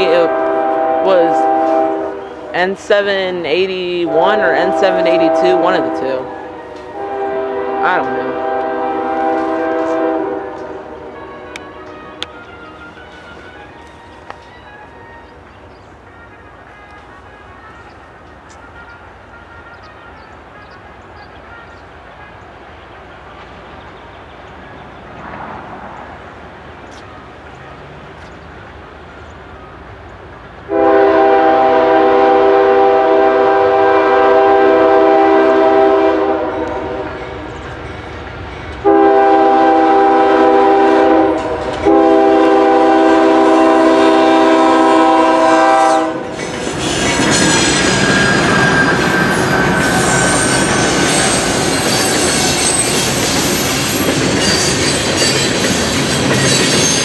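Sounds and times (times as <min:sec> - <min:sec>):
locomotive air horn blasts: 0:00.0 - 0:02.7, 0:04.0 - 0:13.8, 0:16.1 - 0:22.6, 0:30.7 - 0:37.4, 0:38.8 - 0:53.2
train cars clickety-clack: 0:00.0 - 0:19.1, 0:19.7 - 0:57.0
high wheel squeal: 0:46.3 - 0:57.0.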